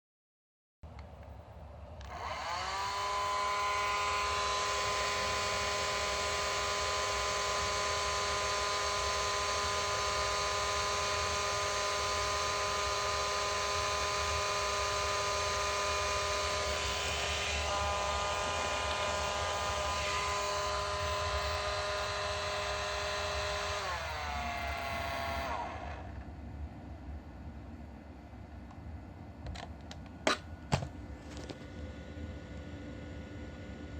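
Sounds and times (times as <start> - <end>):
hair dryer running: 2.0 - 26.2.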